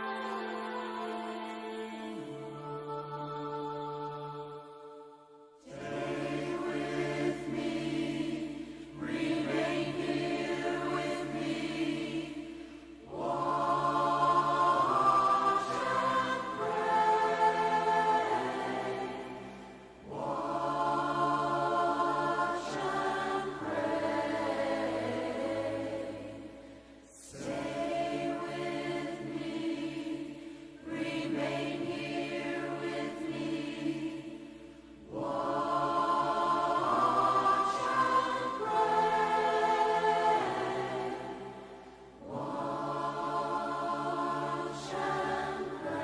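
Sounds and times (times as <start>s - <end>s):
choir singing held chords: 0.0s - 46.0s
singers breathing: 8.5s - 9.0s, 12.4s - 13.1s, 26.4s - 27.2s.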